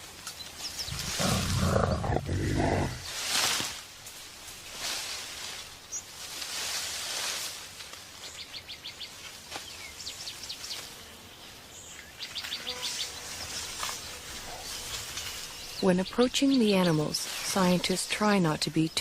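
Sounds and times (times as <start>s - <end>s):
insects hissing: 0.7s - 3.6s.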